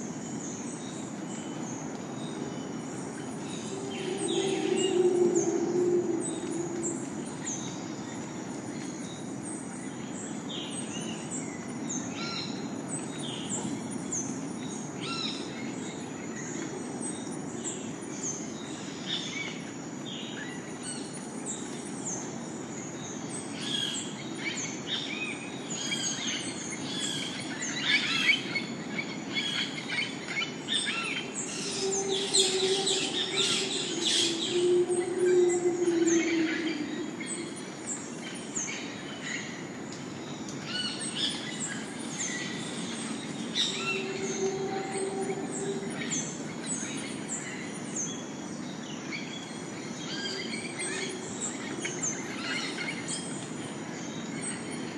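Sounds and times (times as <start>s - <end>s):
low steady drone: 0.7s - 8.8s, 29.8s - 40.6s, 41.8s - 47.8s
birds chirping: 3.1s - 7.8s, 31.2s - 39.4s
high-pitched whine: 3.1s - 8.2s, 31.4s - 38.4s, 43.2s - 47.0s
low background hum: 20.3s - 54.9s.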